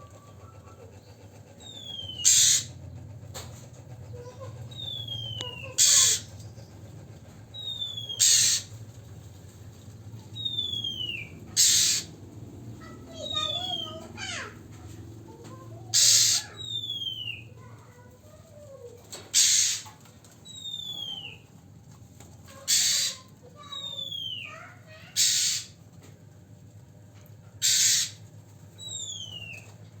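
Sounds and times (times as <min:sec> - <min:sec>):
steady low hum: 0:00.0 - 0:20.4
bird harsh rasps: 0:01.6 - 0:02.8, 0:04.7 - 0:06.4, 0:07.6 - 0:08.8, 0:10.4 - 0:12.2, 0:12.8 - 0:14.5, 0:15.9 - 0:17.5, 0:19.3 - 0:20.0, 0:22.6 - 0:25.8, 0:27.6 - 0:28.2.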